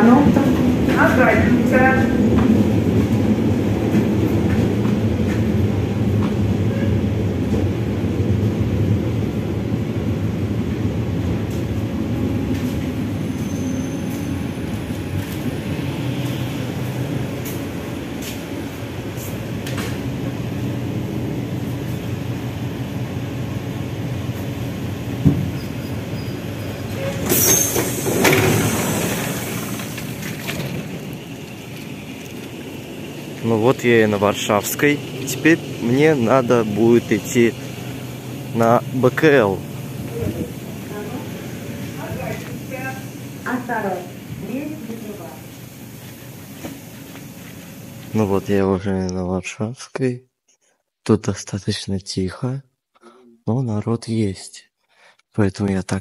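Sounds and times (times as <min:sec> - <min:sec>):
train wheels rumbling on rail: 0:00.0 - 0:48.5
loud hiss: 0:26.6 - 0:30.5.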